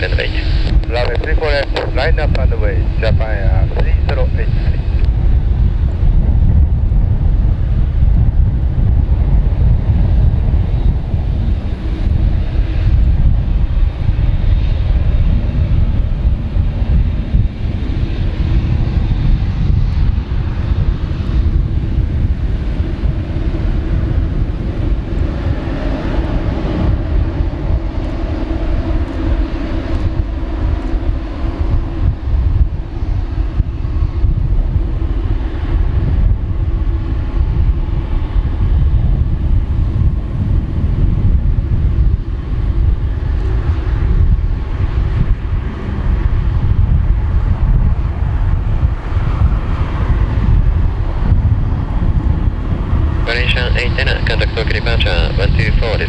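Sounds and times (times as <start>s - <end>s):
jet engine roar: 0.0s - 56.0s.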